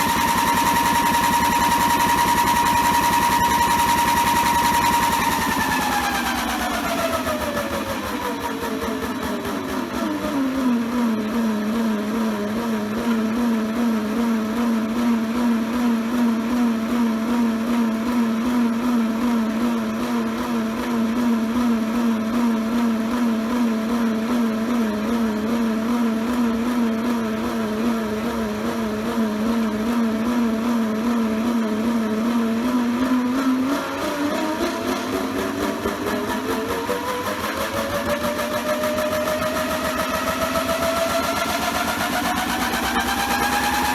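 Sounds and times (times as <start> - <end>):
small electric motor whining: 0.0 - 8.7.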